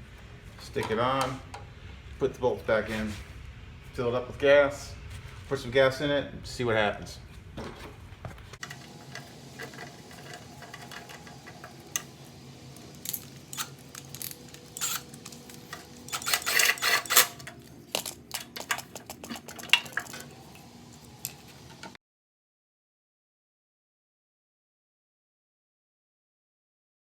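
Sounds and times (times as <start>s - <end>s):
metal engine parts clinking: 8.6s - 22.0s.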